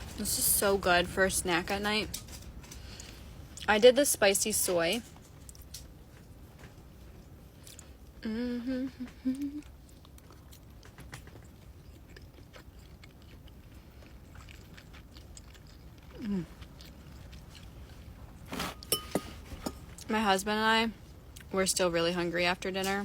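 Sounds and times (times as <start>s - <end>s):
woman chewing noodles: 7.0s - 20.1s
woman humming mmm: 8.2s - 9.7s.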